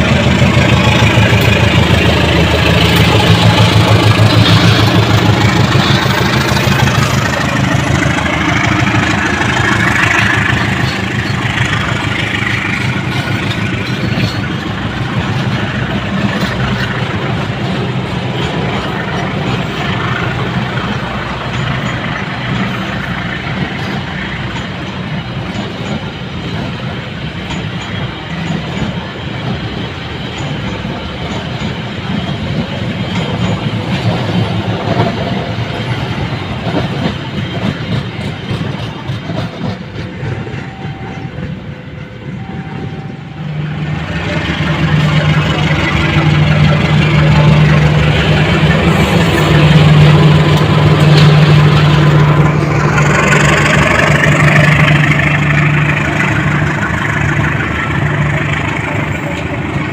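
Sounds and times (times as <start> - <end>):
train rumbling on rails: 0.0 - 59.9
low diesel engine drone: 40.2 - 59.9.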